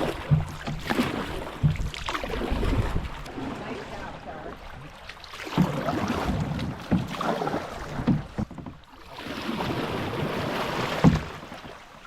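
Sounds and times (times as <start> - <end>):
hollow knocks: 0.0 - 2.2, 7.9 - 8.9
paddle strokes: 0.0 - 12.0
rush of water: 0.0 - 12.0
water washing along hull: 0.0 - 12.0.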